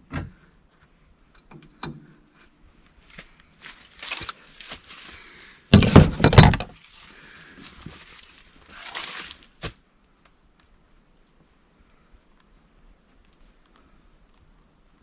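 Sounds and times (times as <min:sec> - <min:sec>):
rustling and handling noises: 0:02.7 - 0:09.8
loud knocks and clatter: 0:05.8 - 0:06.7.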